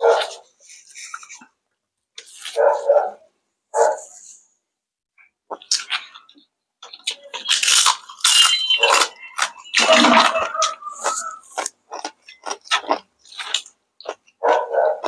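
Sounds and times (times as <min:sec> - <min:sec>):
crunchy fried chicken chewing: 0:05.5 - 0:15.0.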